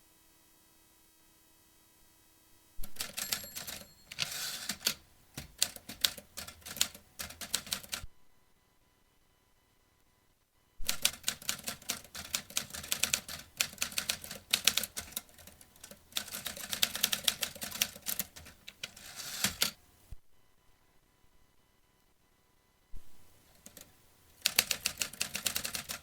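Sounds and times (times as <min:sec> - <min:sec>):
typewriter key strikes: 0:02.9 - 0:08.0.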